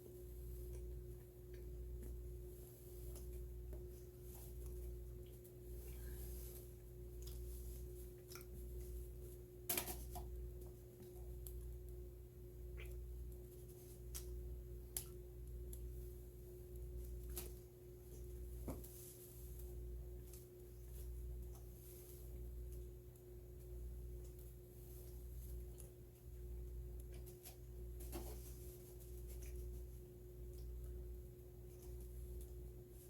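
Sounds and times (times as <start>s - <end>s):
steady low hum: 0.0s - 33.0s
chewing and mouth sounds: 7.2s - 8.9s.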